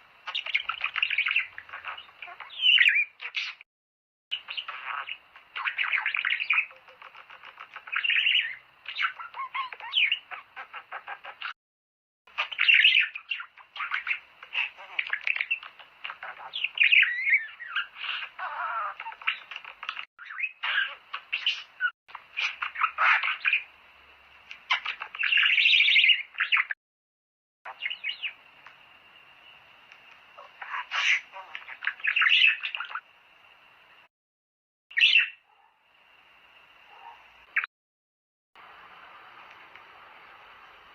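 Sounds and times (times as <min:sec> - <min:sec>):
budgerigars chattering: 0:00.3 - 0:03.6, 0:04.4 - 0:11.5, 0:12.3 - 0:23.7, 0:24.6 - 0:26.8, 0:30.4 - 0:33.0.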